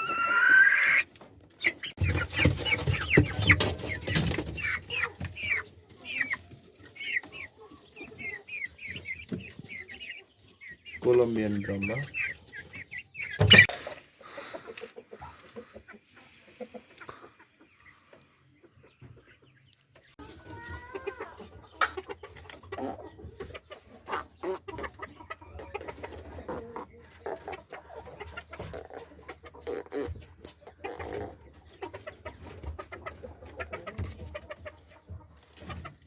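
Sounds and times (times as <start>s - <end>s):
wavering chicken call: 0.0s - 1.0s
chickens clucking: 0.0s - 36.0s.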